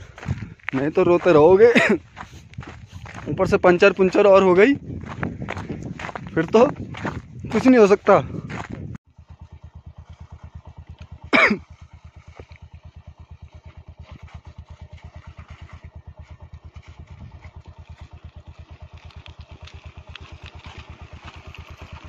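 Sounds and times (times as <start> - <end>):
motorcycle engine low revs: 0.0 - 22.0.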